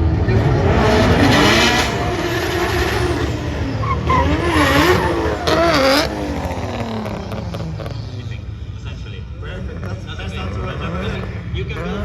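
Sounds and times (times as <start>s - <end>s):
car engine revving: 0.0s - 8.8s
tyres squealing: 1.1s - 7.0s.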